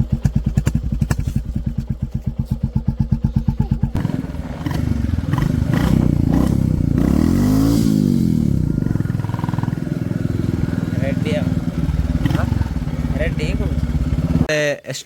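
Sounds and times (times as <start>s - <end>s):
motorcycle engine thumping and revving: 0.0s - 14.5s.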